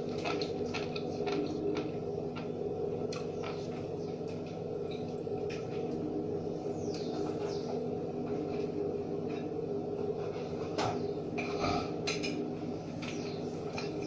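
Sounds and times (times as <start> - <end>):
person chewing food: 0.0 - 3.7
steady low hum: 0.0 - 14.0.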